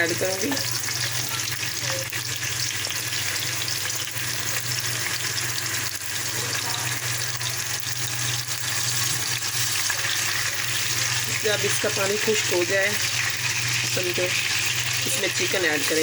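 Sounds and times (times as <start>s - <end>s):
oil sizzling in a pan: 0.0s - 16.0s.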